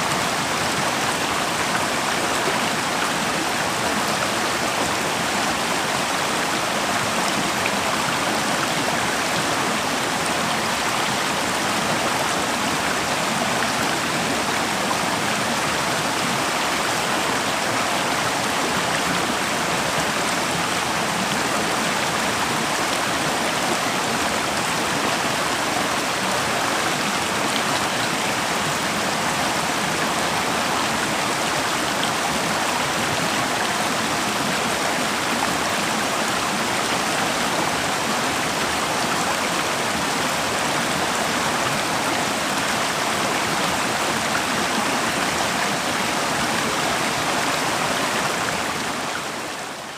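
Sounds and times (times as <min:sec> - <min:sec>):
river water rushing over rocks: 0:00.0 - 0:49.9.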